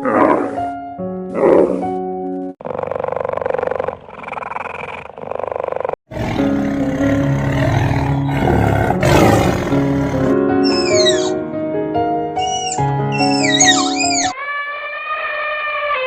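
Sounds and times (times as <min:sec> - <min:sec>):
big cat roaring: 0:02.6 - 0:11.3.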